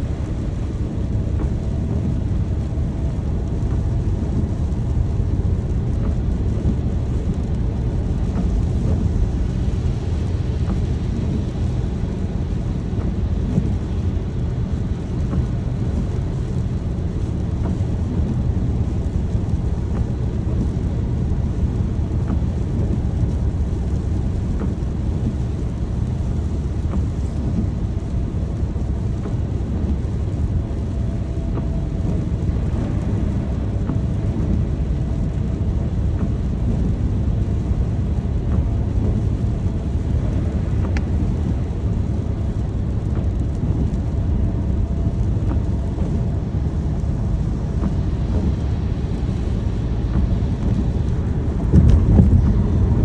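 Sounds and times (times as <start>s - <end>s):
rain rumble: 0.0s - 53.0s
thunder: 47.8s - 53.0s.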